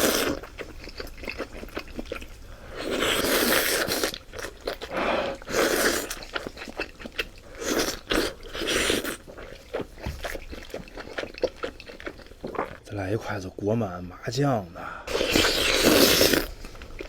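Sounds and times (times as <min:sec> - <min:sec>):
chewing with wet clicks: 0:00.0 - 0:12.8.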